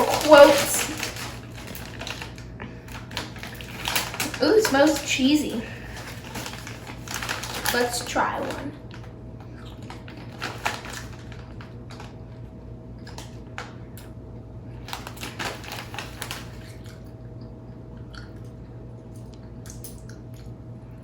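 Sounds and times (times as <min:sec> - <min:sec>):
chips crunching: 0:00.0 - 0:12.4, 0:14.8 - 0:18.6
steady low hum: 0:00.0 - 0:21.0.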